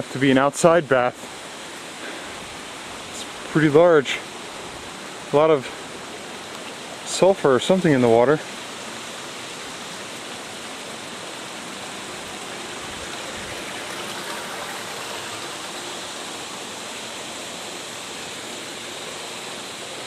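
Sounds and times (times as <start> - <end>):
water running into foot bath: 12.1 - 16.8.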